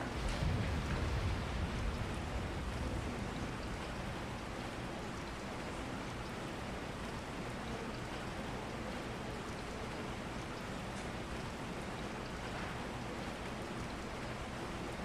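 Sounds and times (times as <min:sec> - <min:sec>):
low rumble: 0:00.0 - 0:04.2
steady rain: 0:00.0 - 0:15.0.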